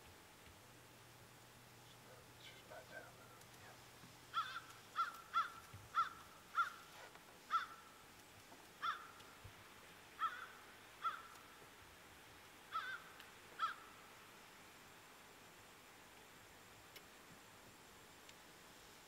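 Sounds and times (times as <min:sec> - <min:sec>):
bird cawing: 0:04.3 - 0:08.0, 0:08.8 - 0:09.4, 0:10.1 - 0:11.6, 0:12.6 - 0:14.1.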